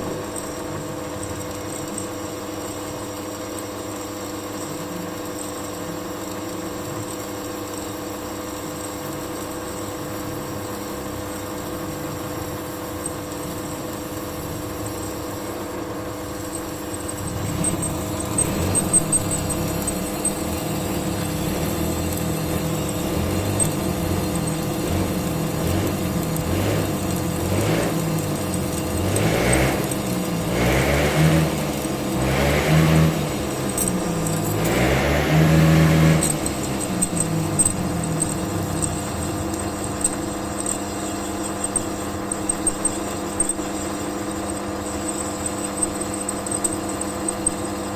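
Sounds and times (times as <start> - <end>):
electric drill drilling steel: 11.0 - 47.9.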